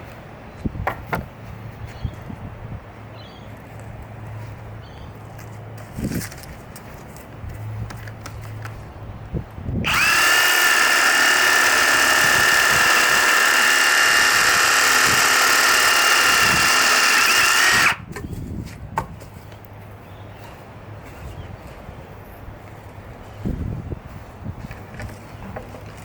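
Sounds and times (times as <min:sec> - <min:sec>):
reciprocating saw motor whine: 0:09.8 - 0:18.0.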